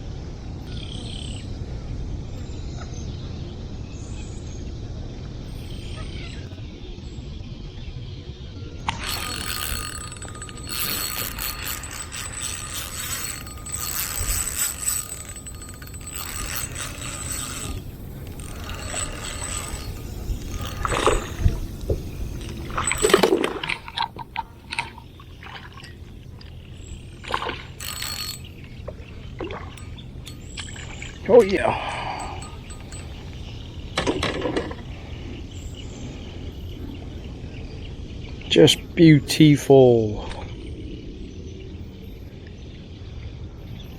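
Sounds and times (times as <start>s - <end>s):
fishing reel whirring and clicking: 8.9s - 36.6s.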